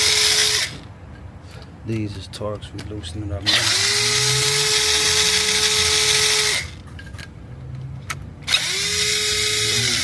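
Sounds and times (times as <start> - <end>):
power drill motor whining: 0.0 - 0.8, 3.5 - 6.8, 8.4 - 10.0.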